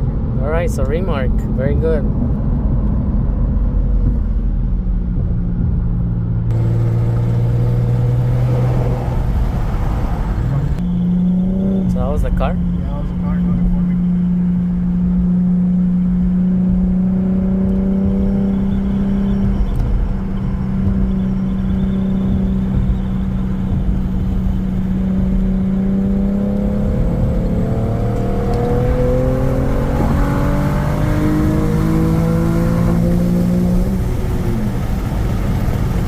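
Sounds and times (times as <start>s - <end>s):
car exhaust droning: 0.0s - 36.0s.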